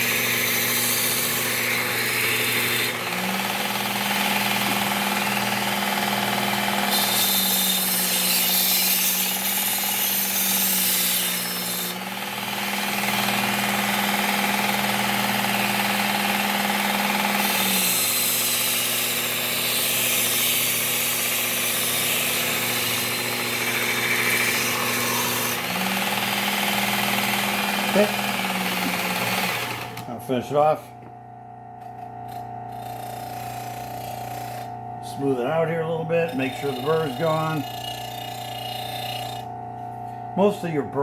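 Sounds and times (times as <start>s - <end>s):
blade grinding on abrasive belt: 0.0s - 30.8s, 32.0s - 41.0s
belt sharpener motor humming: 0.0s - 41.0s.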